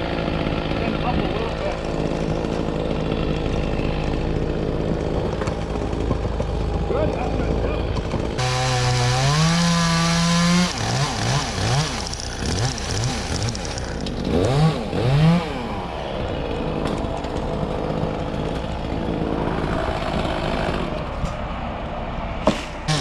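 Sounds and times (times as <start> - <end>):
chainsaw revving: 0.0 - 21.0.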